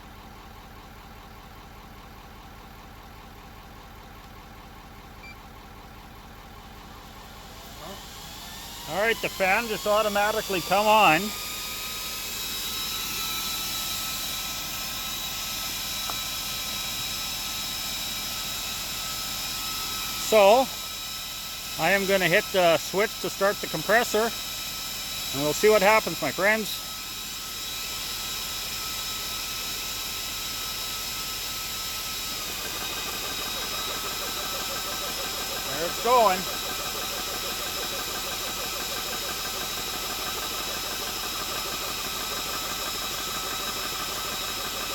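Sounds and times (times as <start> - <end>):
cooling fan whining: 7.0 - 44.9
compressor pump knocking: 29.1 - 44.9.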